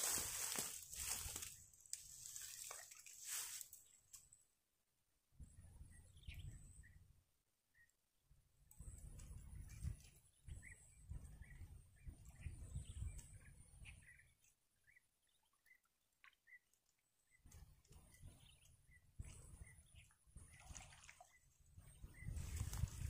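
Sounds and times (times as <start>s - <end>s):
wind rumble on microphone: 5.4s - 7.1s, 8.7s - 14.2s, 17.4s - 20.9s, 21.7s - 23.0s
faint bird chirps: 8.8s - 23.0s.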